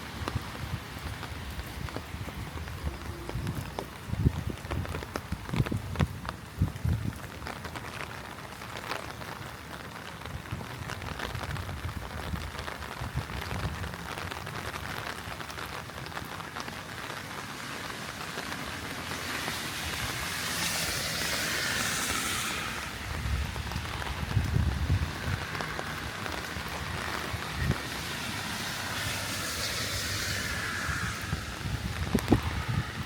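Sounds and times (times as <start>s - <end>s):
heavy rain: 0.0s - 33.0s
rushing hiss: 19.0s - 23.2s, 28.4s - 31.7s.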